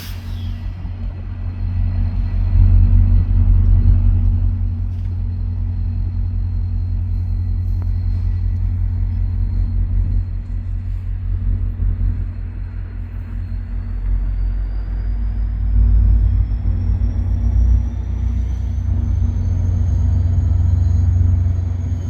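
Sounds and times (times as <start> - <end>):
faint high whine: 0.0 - 22.0
locomotive low rumble: 0.0 - 22.0.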